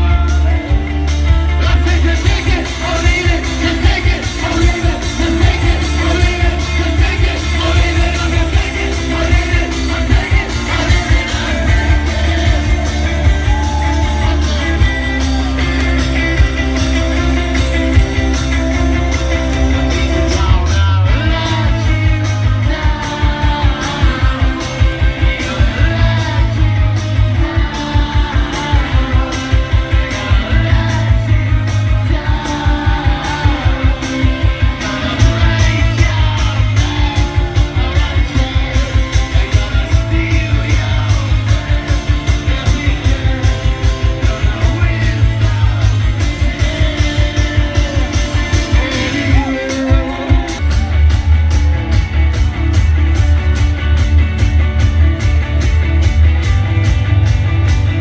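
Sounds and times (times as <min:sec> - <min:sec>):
person singing: 0:00.0 - 0:55.3
drums: 0:00.0 - 0:58.0
electric guitars: 0:00.0 - 0:58.0.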